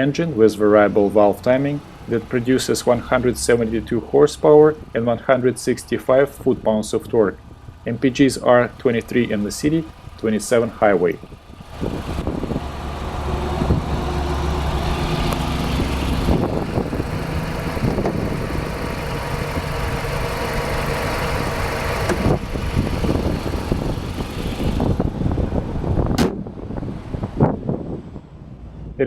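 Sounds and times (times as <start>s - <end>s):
car engine idling: 0.0s - 26.8s
sharp knock: 26.2s - 26.4s.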